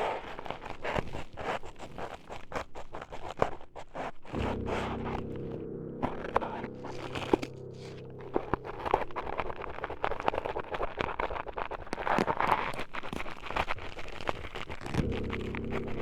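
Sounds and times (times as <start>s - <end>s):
steady buzzing hum: 4.4s - 9.2s.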